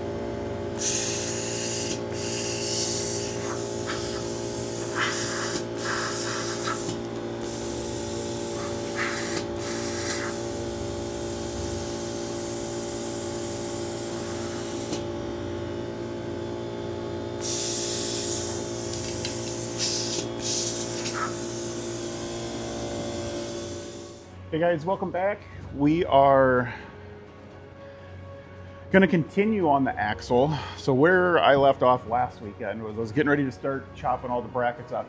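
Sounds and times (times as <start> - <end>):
machine hum: 0.0 - 24.4
compressed air hissing: 0.7 - 15.2, 17.4 - 24.3.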